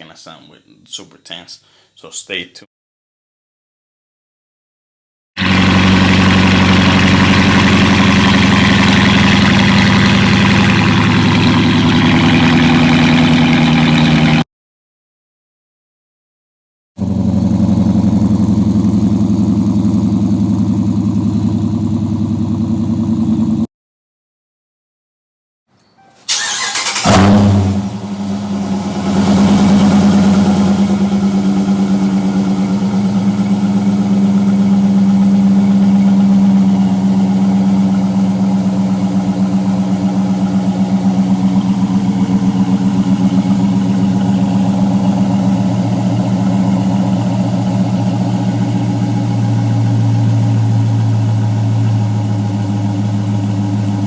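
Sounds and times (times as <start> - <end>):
car engine idling: 5.4 - 14.4, 17.0 - 23.6, 26.3 - 54.0
engine cranking and starting: 26.2 - 28.2.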